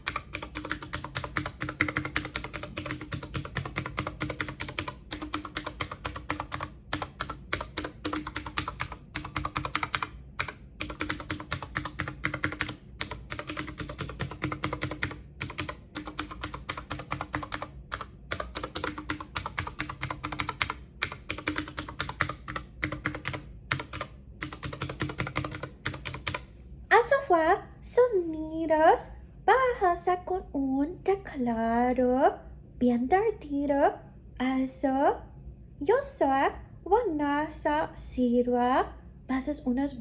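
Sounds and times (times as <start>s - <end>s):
rapid typing on keyboard: 0.0s - 26.5s.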